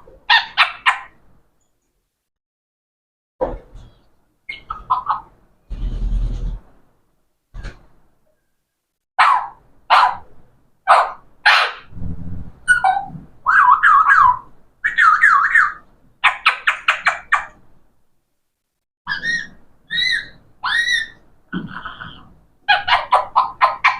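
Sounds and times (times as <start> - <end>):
parrot squawking: 0.3 - 1.2, 4.5 - 5.4, 12.7 - 17.6, 19.1 - 21.2, 21.8 - 23.9
parrot chirps: 4.5 - 5.4, 12.7 - 17.6, 19.1 - 23.9
parrot warbling whistles: 19.1 - 21.2.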